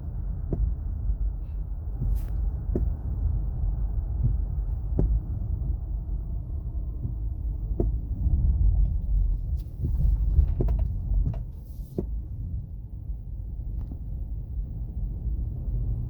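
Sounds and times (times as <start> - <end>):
road and drivetrain rumble: 0.0 - 16.0
short sharp knocks: 4.2 - 5.2, 7.1 - 8.0.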